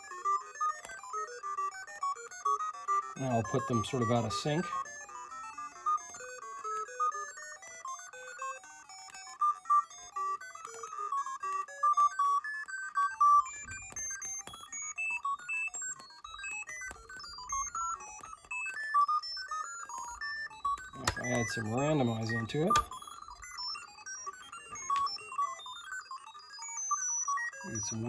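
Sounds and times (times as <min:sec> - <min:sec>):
random pitch electronic beeps: 0:20.6 - 0:23.8, 0:27.6 - 0:28.0.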